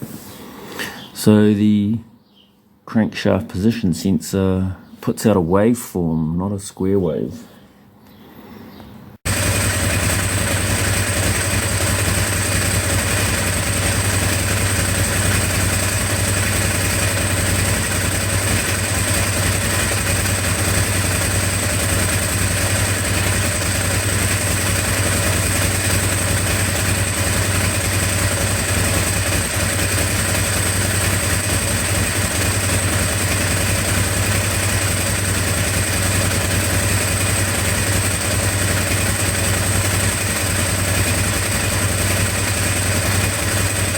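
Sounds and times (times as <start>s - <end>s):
motorcycle engine idling: 9.2s - 43.9s.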